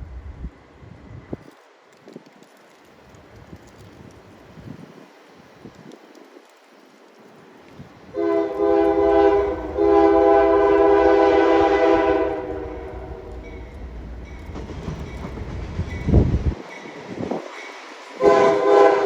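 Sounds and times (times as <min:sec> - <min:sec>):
locomotive air horn blasts: 0:08.1 - 0:13.7, 0:18.2 - 0:19.0
locomotive engine rumble: 0:08.1 - 0:16.6.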